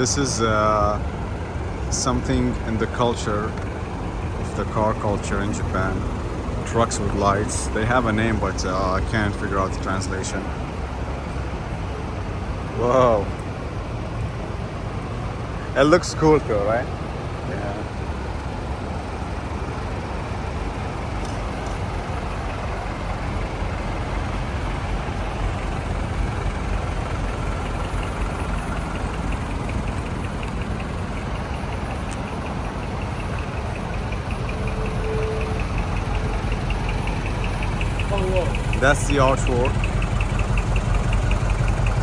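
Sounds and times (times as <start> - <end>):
vehicle engines idling: 0.0 - 42.0
fast high ticking: 1.6 - 10.8, 18.6 - 42.0.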